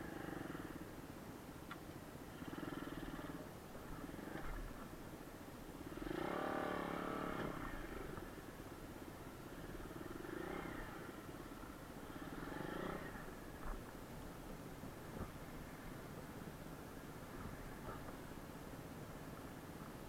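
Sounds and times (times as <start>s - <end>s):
motorcycle engine revving: 2.3s - 4.9s, 5.8s - 8.5s, 9.4s - 14.0s.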